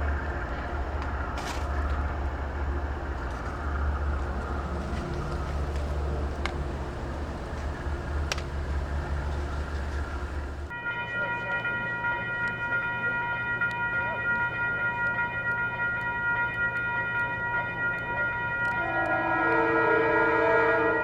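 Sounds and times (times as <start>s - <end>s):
locomotive air horn: 18.8s - 21.0s.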